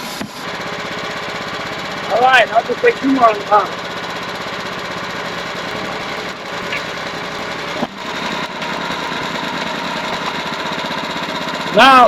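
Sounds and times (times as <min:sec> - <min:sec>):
sawmill engine idling: 0:05.0 - 0:10.7.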